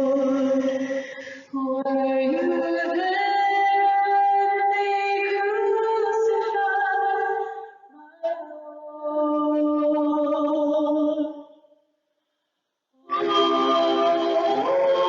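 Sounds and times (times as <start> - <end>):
voices singing long notes: 13.1 - 15.0.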